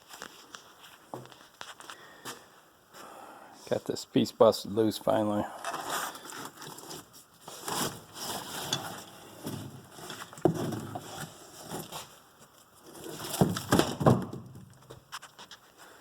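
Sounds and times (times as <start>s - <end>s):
rotten wood cracking and scraping: 5.7s - 14.2s.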